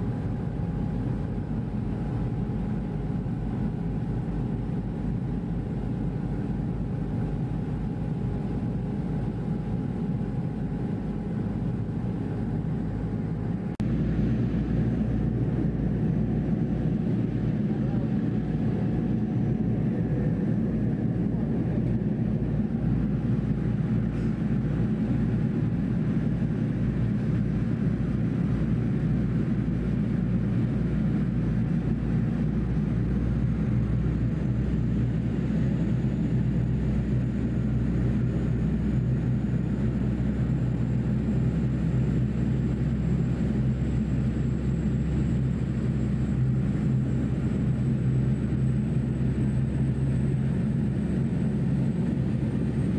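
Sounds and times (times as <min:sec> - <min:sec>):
ferry engines droning: 0:00.0 - 0:52.9.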